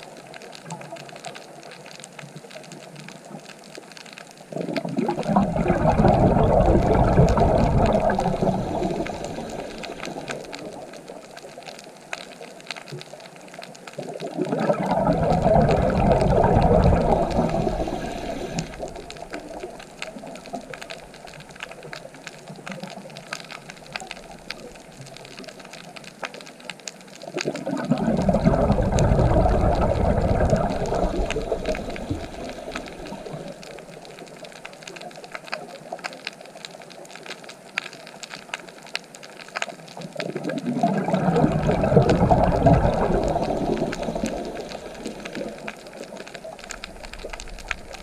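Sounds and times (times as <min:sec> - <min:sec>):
low hiss: 0:00.0 - 0:37.0, 0:41.0 - 0:48.0
faint clicks: 0:00.0 - 0:48.0
diver's bubbles rushing underwater: 0:04.5 - 0:11.6, 0:14.0 - 0:25.8, 0:27.2 - 0:34.5, 0:39.9 - 0:48.0.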